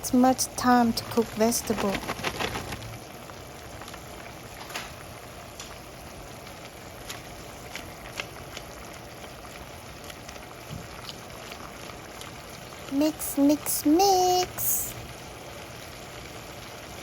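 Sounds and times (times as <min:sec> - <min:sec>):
pot boiling with bubbling hiss: 0:00.0 - 0:17.0.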